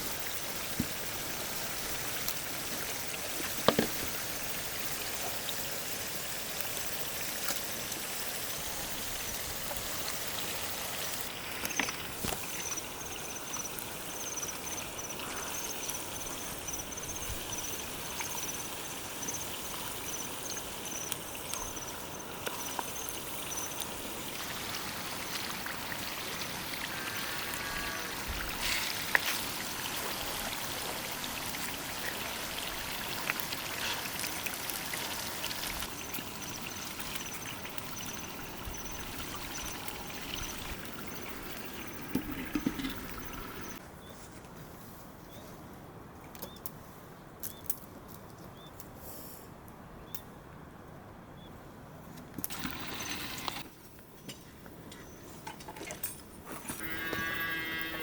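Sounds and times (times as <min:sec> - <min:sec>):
running water rushing: 0:22.0 - 0:43.8, 0:52.5 - 0:53.6.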